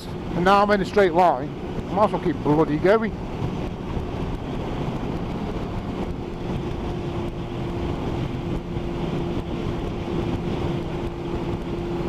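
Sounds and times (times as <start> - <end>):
motorcycle engine cruising: 0.0 - 12.0
wind rush on microphone: 0.0 - 12.0.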